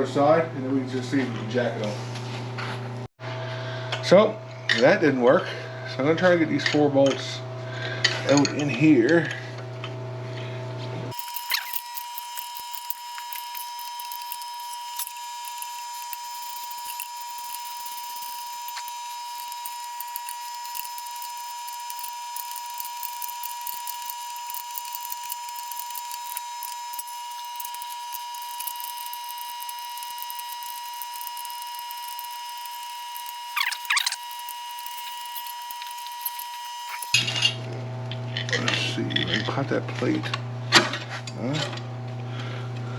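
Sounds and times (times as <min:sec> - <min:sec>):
power tool cutting whine: 0:11.1 - 0:37.5.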